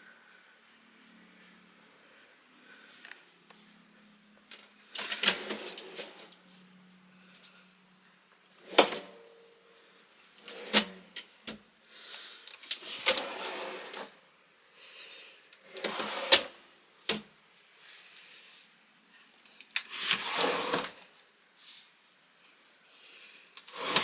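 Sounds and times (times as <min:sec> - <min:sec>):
wooden sliding scrapes: 0:05.2 - 0:06.4, 0:12.8 - 0:14.2, 0:15.7 - 0:16.6, 0:19.9 - 0:21.1, 0:23.7 - 0:24.0.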